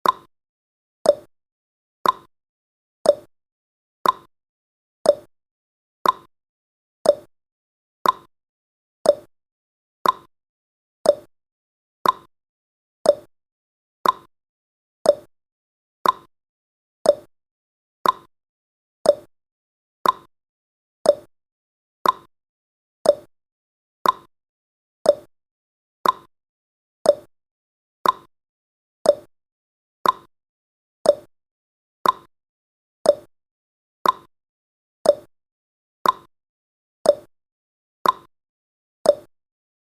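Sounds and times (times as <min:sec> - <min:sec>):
timer ticking: 0:00.0 - 0:00.3, 0:01.0 - 0:01.3, 0:02.0 - 0:02.3, 0:03.0 - 0:03.3, 0:04.0 - 0:04.3, 0:05.1 - 0:05.3, 0:06.0 - 0:06.3, 0:07.0 - 0:07.3, 0:08.0 - 0:08.3, 0:09.0 - 0:09.3, 0:10.0 - 0:10.3, 0:11.0 - 0:11.3, 0:12.0 - 0:12.3, 0:13.0 - 0:13.3, 0:14.0 - 0:14.3, 0:15.0 - 0:15.3, 0:16.0 - 0:16.3, 0:17.0 - 0:17.3, 0:18.0 - 0:18.3, 0:19.0 - 0:19.3, 0:20.0 - 0:20.3, 0:21.0 - 0:21.3, 0:22.0 - 0:22.3, 0:23.0 - 0:23.3, 0:24.0 - 0:24.3, 0:25.0 - 0:25.3, 0:26.0 - 0:26.3, 0:27.0 - 0:27.3, 0:28.0 - 0:28.3, 0:29.0 - 0:29.3, 0:30.0 - 0:30.3, 0:31.0 - 0:31.3, 0:32.0 - 0:32.3, 0:33.0 - 0:33.3, 0:34.0 - 0:34.3, 0:35.0 - 0:35.3, 0:36.0 - 0:36.3, 0:37.0 - 0:37.3, 0:38.0 - 0:38.3, 0:39.1 - 0:39.3.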